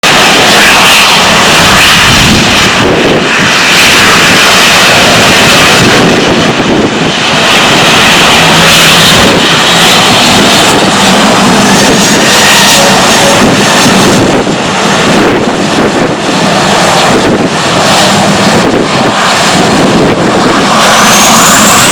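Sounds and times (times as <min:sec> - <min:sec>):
jet engines at high power: 0:00.0 - 0:21.9
faint high whine: 0:00.1 - 0:17.5.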